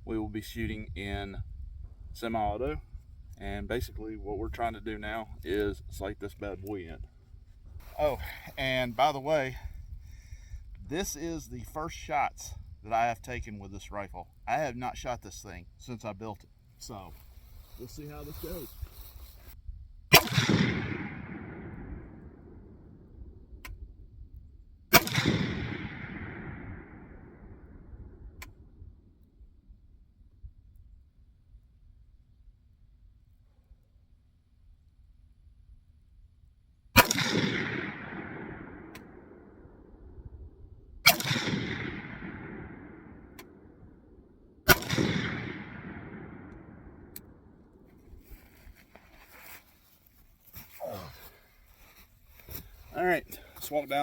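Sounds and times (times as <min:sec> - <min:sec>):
rifle shots with echo: 0:20.1 - 0:23.0, 0:24.9 - 0:28.2, 0:37.0 - 0:40.0, 0:41.0 - 0:47.8.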